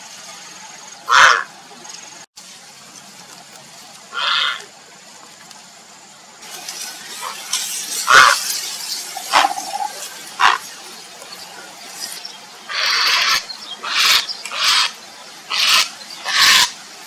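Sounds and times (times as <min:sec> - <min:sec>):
steady background hiss: 0:00.0 - 0:17.0
heron giving harsh calls: 0:01.1 - 0:01.5, 0:04.1 - 0:04.7, 0:08.1 - 0:08.4, 0:09.2 - 0:10.7, 0:12.7 - 0:16.8.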